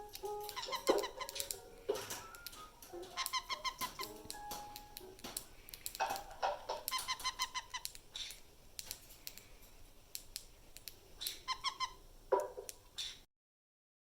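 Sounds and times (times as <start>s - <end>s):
cockatiel chirping: 0.0s - 8.9s, 11.2s - 13.2s
sharp clicks: 0.0s - 9.5s, 10.1s - 11.4s.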